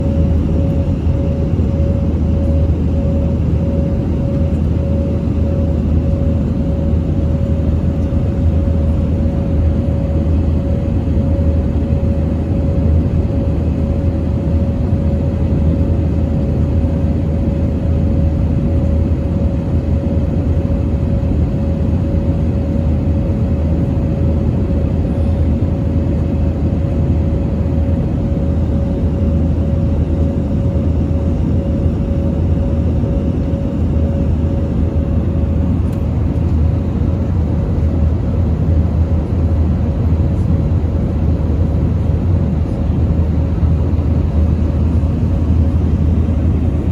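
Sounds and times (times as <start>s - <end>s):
faint hum: 0.0s - 46.9s.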